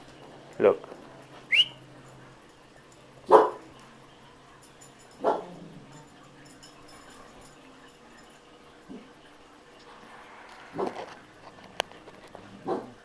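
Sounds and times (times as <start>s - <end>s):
dog barking: 3.3s - 3.7s, 5.2s - 5.6s, 10.7s - 11.2s, 12.5s - 13.0s
dog whining: 10.1s - 11.2s.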